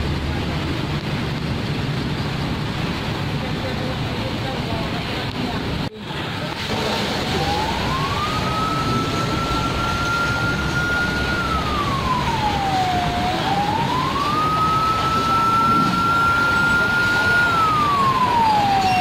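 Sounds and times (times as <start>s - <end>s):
rumble of road traffic: 0.0s - 19.0s
siren wailing: 7.1s - 19.0s.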